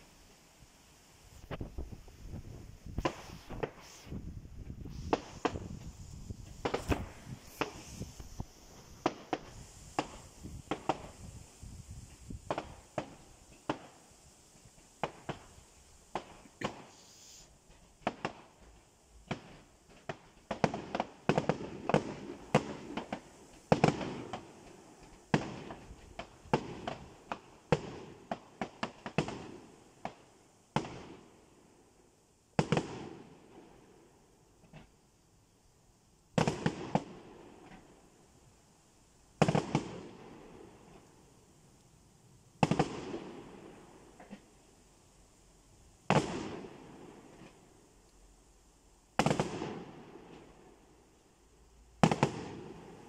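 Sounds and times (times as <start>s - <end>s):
fireworks bangs and crackles: 1.3s - 31.4s, 32.5s - 33.9s, 36.3s - 38.0s, 39.4s - 41.0s, 42.6s - 44.5s, 46.0s - 47.7s, 49.2s - 50.7s, 52.0s - 53.0s.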